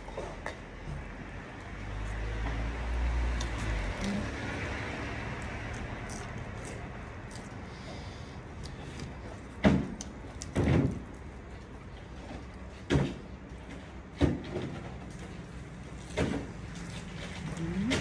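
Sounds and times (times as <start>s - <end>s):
low background hum: 0.0s - 18.0s
crunching cabbage leaves: 3.2s - 12.8s.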